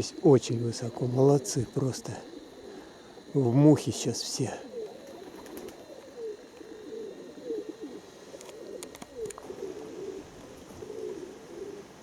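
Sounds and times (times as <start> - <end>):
pigeons cooing: 0.0 - 12.0
faint sharp clicks: 8.4 - 10.5.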